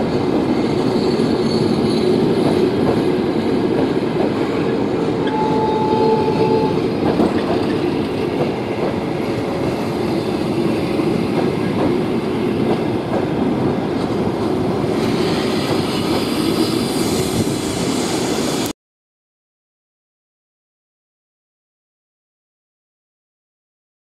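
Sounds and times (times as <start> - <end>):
train wheels rumbling on rails: 0.0 - 18.7.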